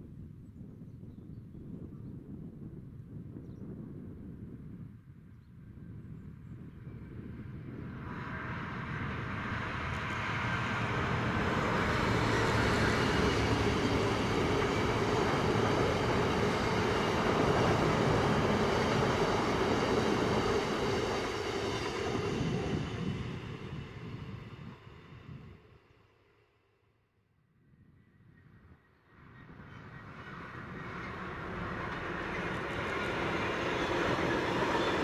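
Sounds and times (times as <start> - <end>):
freight train wheels rumbling: 7.7 - 24.4, 29.5 - 35.0.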